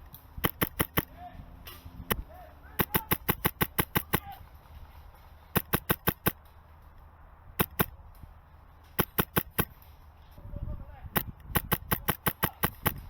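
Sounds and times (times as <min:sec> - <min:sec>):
airsoft gun shots: 0:00.4 - 0:01.1, 0:02.8 - 0:04.4, 0:05.6 - 0:06.4, 0:07.6 - 0:08.0, 0:09.0 - 0:09.8, 0:11.2 - 0:13.0.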